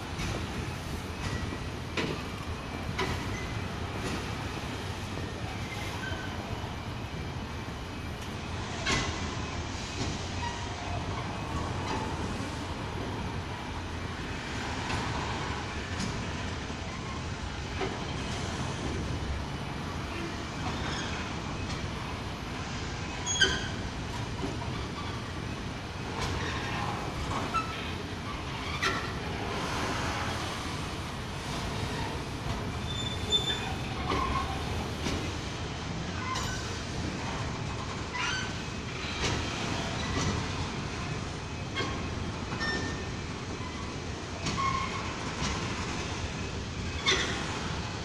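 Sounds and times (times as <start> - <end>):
train wheels rumbling on rails: 0.0 - 48.0
high wheel squeals: 5.6 - 6.7, 23.2 - 23.9, 32.8 - 34.7, 38.1 - 38.6, 41.8 - 45.1.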